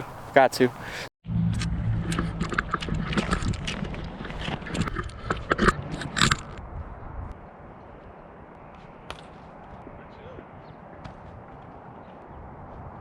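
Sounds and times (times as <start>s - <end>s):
microphone handling scrapes and clicks: 1.5s - 6.9s.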